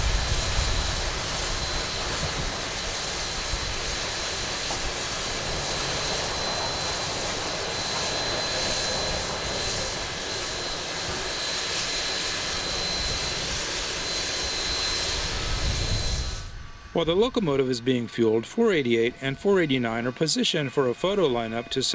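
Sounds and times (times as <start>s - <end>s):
hiss: 0.0s - 16.6s
thin high whine: 0.0s - 21.9s.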